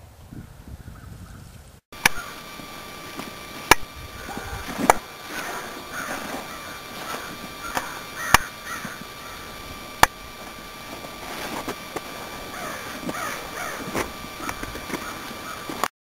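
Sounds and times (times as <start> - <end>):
birds calling: 0.4 - 15.9
sharp clicks: 2.0 - 2.3, 3.1 - 15.9.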